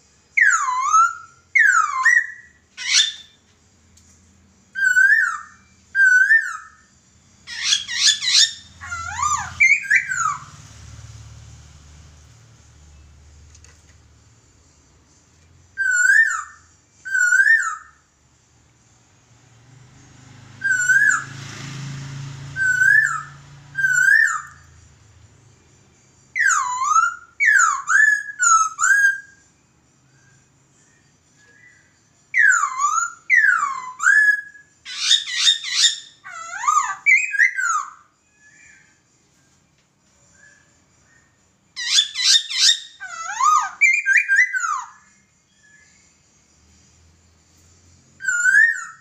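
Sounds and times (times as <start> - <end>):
bird whistling song: 0.3 - 3.6, 4.6 - 11.4, 15.1 - 18.2, 20.4 - 21.6, 22.4 - 24.9, 26.2 - 39.6, 40.2 - 46.3, 48.0 - 49.0.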